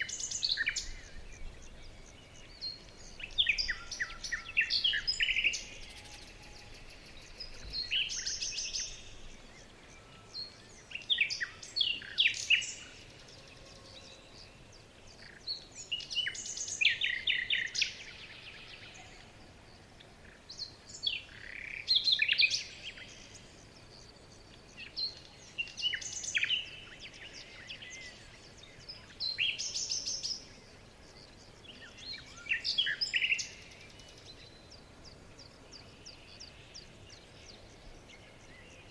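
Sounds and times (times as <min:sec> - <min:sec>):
faint background hiss: 0:00.0 - 0:38.9
songbird chirps and trills: 0:00.0 - 0:38.9.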